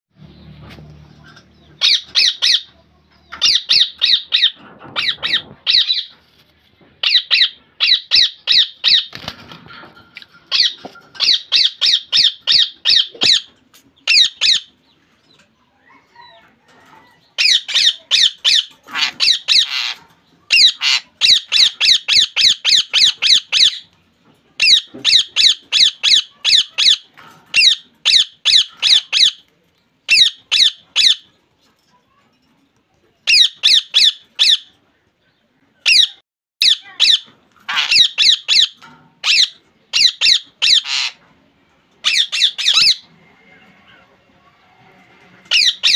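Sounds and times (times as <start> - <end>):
parakeet squawking: 1.8 - 2.7, 3.4 - 6.1, 7.0 - 9.1, 10.5 - 14.7, 17.4 - 23.8, 24.6 - 29.4, 30.1 - 31.3, 33.3 - 34.7, 35.8 - 41.2, 42.0 - 43.1, 45.5 - 45.9.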